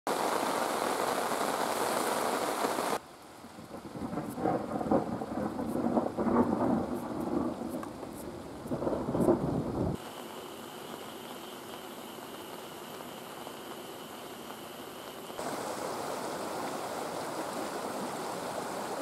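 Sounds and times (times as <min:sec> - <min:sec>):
heavy rain hissing: 0:00.1 - 0:19.0
rolling thunder rumble: 0:03.6 - 0:10.0.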